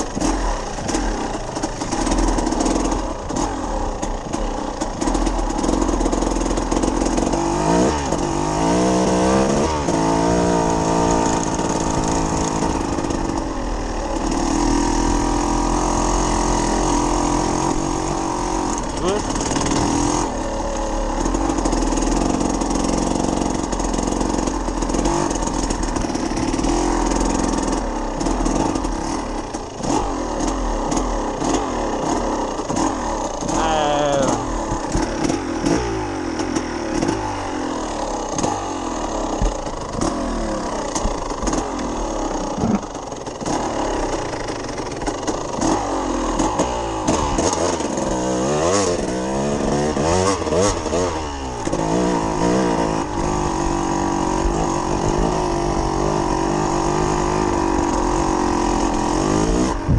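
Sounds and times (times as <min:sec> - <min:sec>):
motorcycle engine revving: 0:00.0 - 0:59.9
motorcycle knocking over bumps: 0:00.0 - 0:59.9.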